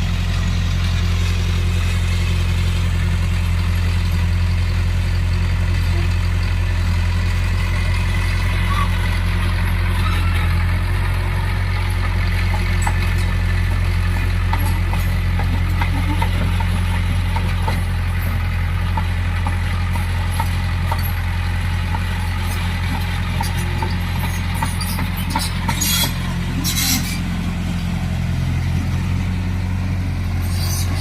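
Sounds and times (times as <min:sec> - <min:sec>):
heavy diesel engine droning: 0:00.0 - 0:31.0.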